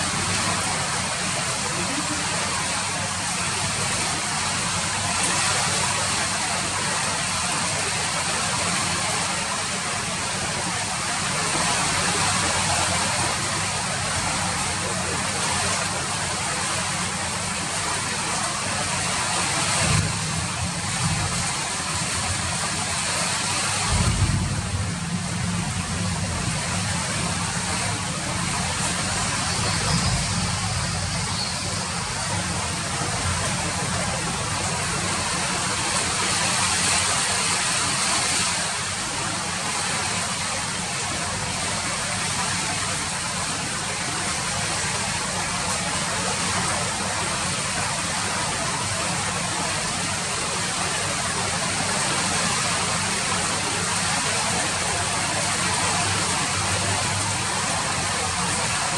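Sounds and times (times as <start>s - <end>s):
steady rain hissing: 0.0s - 58.9s
low rumble: 23.8s - 31.3s.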